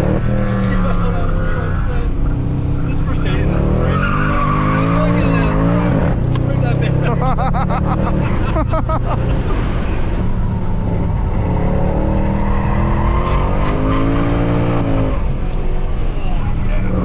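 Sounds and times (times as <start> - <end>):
car engine under load: 0.0 - 17.0
tyres squealing: 0.3 - 6.0.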